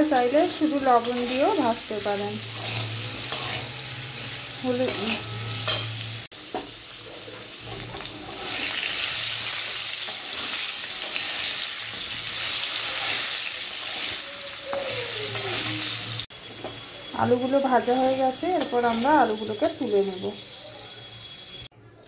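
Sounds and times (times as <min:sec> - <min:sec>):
metal spatula scraping pan: 0:00.0 - 0:06.3, 0:07.0 - 0:14.3
potatoes sizzling in oil: 0:00.0 - 0:21.7.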